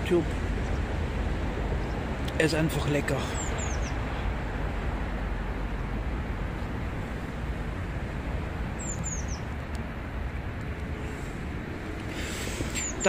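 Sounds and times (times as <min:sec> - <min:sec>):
low outdoor rumble: 0:00.0 - 0:13.0
bird chirping: 0:03.2 - 0:04.2, 0:08.7 - 0:09.6, 0:12.2 - 0:13.0.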